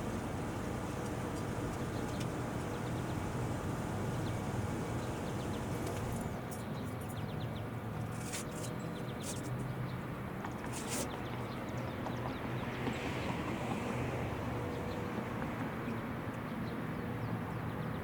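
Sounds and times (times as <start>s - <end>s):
low outdoor rumble: 0.0s - 6.5s.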